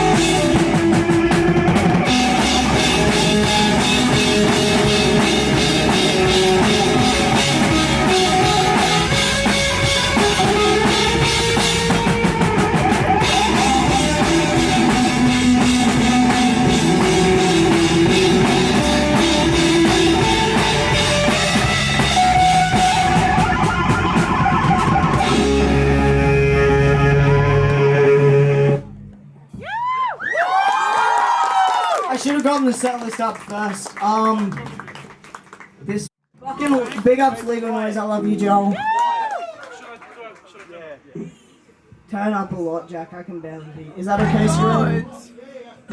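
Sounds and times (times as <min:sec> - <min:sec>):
heavy rock band playing: 0:00.0 - 0:28.9
crowd whooping: 0:10.3 - 0:28.2, 0:29.6 - 0:32.4, 0:38.7 - 0:40.2.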